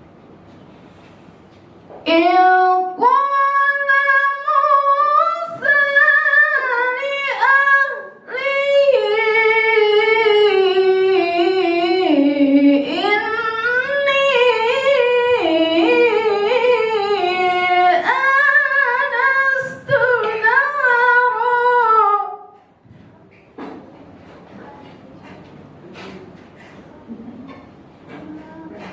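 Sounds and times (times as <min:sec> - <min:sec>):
woman reciting melodically: 0:02.0 - 0:28.9.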